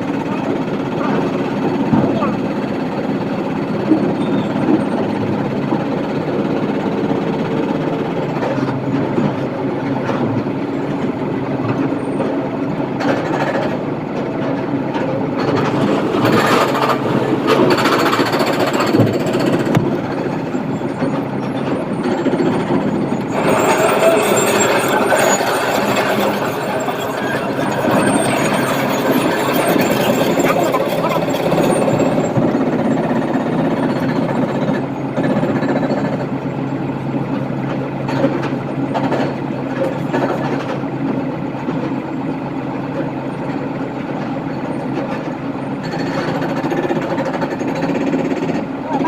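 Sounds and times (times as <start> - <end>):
excavator diesel engine running: 0.0 - 49.0
machinery knocks: 15.4 - 22.9.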